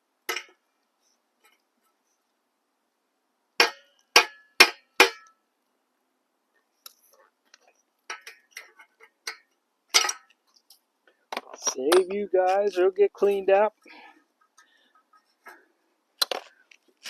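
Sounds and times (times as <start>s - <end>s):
small metal parts clinking: 11.4s - 12.8s.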